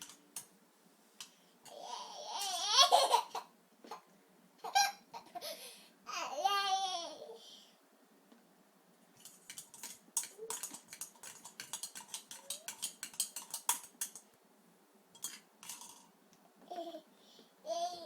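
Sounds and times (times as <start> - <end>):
kitchenware clinking and clicking: 9.2 - 14.4, 15.2 - 16.1.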